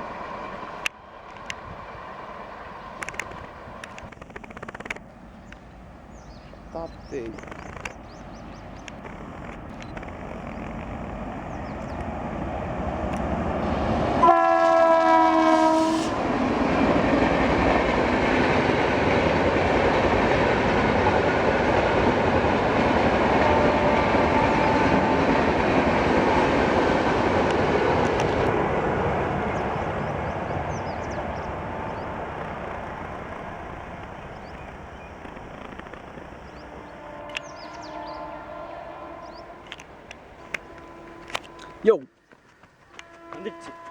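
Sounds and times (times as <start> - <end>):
train coaches rushing past: 4.8 - 43.9
train horn blast: 13.6 - 16.4, 23.0 - 26.8, 30.4 - 33.3, 36.5 - 42.2, 42.9 - 43.9.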